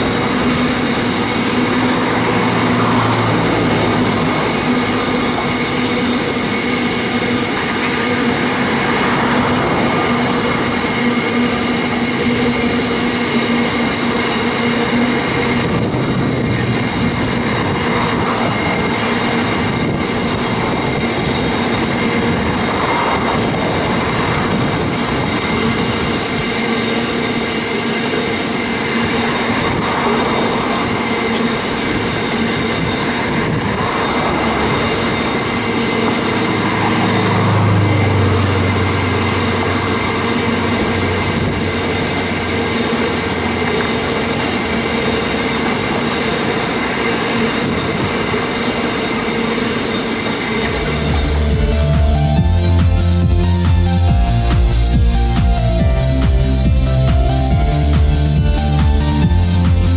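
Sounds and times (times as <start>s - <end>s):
steel wheels rumbling on rail: 0.0s - 59.9s.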